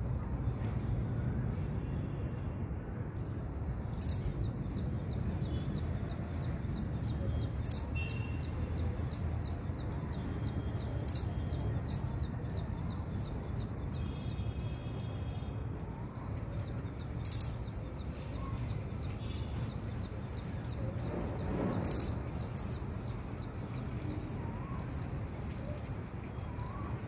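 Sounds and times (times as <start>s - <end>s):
small birds chirping: 17.0s - 24.2s.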